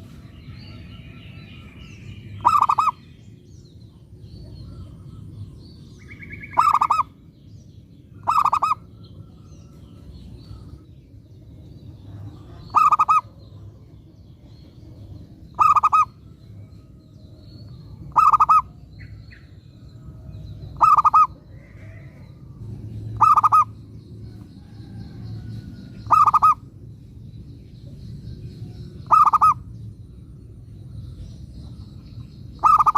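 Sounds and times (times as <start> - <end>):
dove cooing: 2.4 - 3.0, 6.4 - 7.1, 8.2 - 8.9, 12.1 - 13.4, 15.6 - 16.1, 18.1 - 18.8, 20.8 - 22.2, 23.0 - 23.8, 26.0 - 26.6, 29.1 - 29.6, 32.6 - 32.9.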